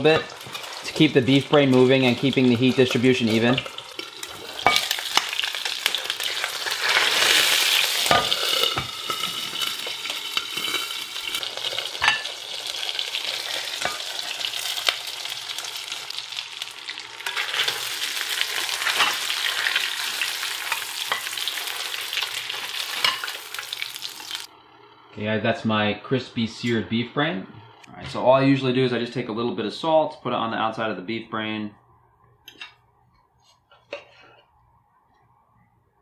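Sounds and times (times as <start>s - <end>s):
meat sizzling in a skillet: 0.0s - 24.5s.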